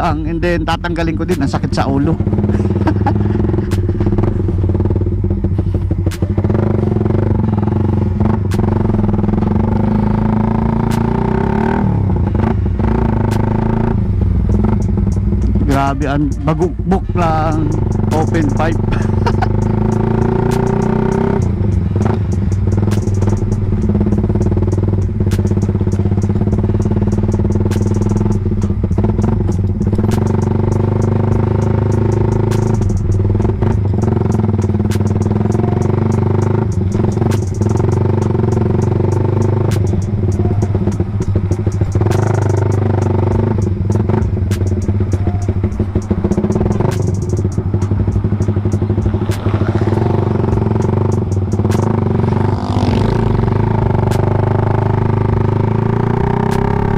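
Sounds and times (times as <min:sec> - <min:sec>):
exhaust crackles: 0:00.0 - 0:56.9
motorcycle engine burbling: 0:00.0 - 0:56.9.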